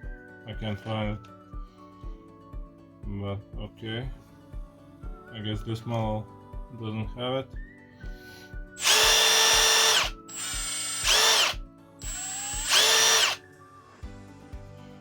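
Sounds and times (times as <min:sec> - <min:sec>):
impact driver motor whining: 0:08.8 - 0:13.4.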